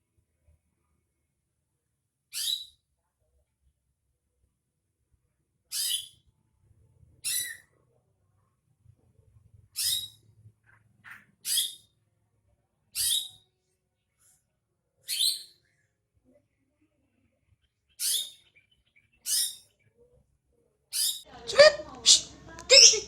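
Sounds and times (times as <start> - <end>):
bird calling: 21.5 - 23.0.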